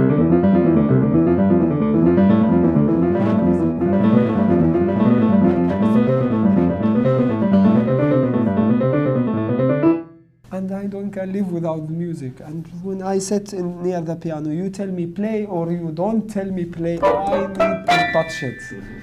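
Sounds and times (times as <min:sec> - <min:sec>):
fast piano passage: 0:00.0 - 0:10.3, 0:17.0 - 0:19.0.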